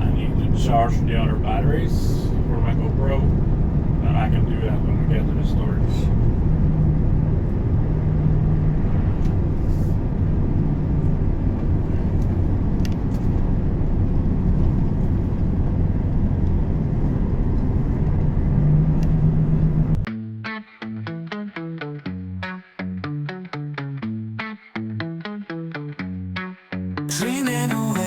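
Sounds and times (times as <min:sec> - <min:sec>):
truck diesel engine droning: 0:00.0 - 0:20.0.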